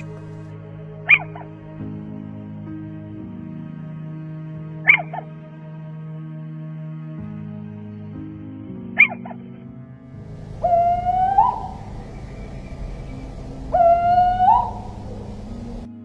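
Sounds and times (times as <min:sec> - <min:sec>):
quiet background music: 0:00.0 - 0:16.0
owl calling: 0:01.1 - 0:01.4, 0:10.2 - 0:16.0.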